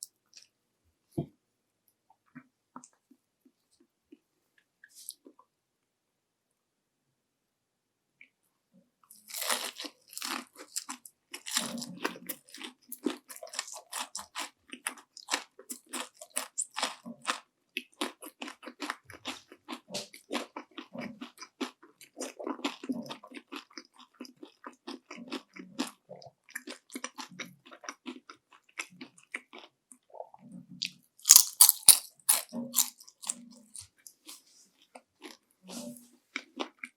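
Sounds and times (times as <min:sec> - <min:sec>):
chewing crispy fried shrimp: 0:09.1 - 0:36.9.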